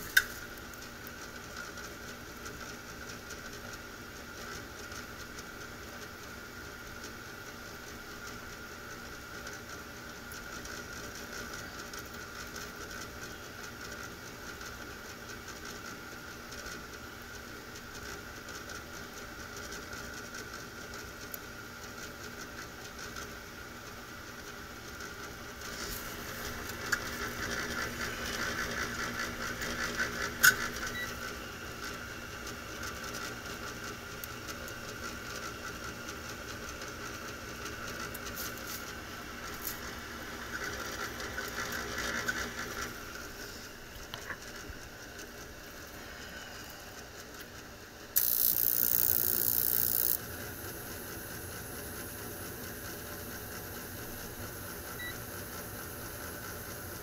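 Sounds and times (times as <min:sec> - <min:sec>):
heating unit motor hum: 0:00.0 - 0:57.0
sharp clicks: 0:48.2 - 0:50.2.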